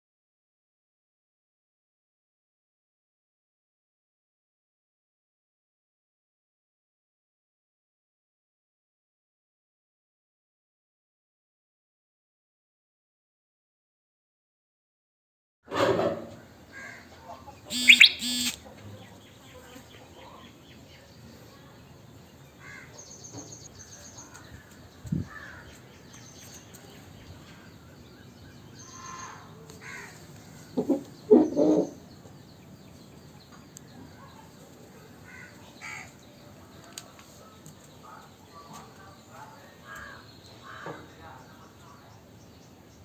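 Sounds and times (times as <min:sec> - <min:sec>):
bird calls and chirps: 0:16.5 - 0:21.3, 0:21.9 - 0:34.6.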